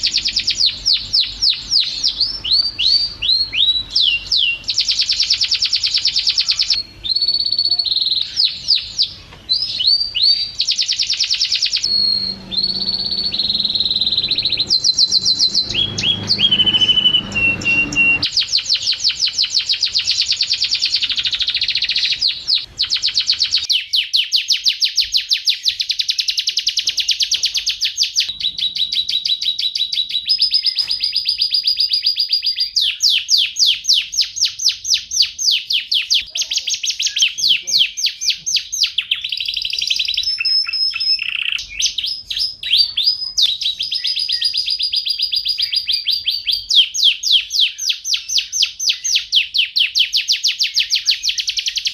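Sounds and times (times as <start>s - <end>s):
canary singing trills: 0.0s - 51.9s.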